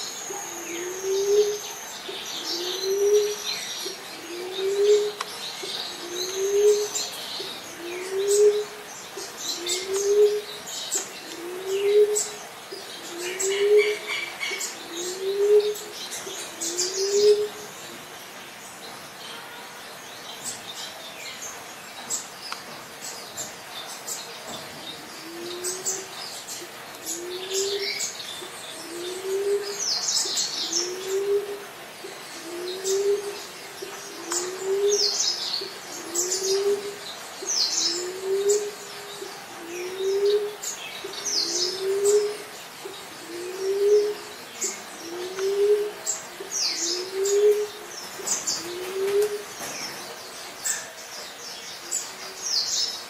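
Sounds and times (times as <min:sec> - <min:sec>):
small birds chirping: 0:00.0 - 0:53.0
dove cooing: 0:00.3 - 0:17.8, 0:25.0 - 0:49.7.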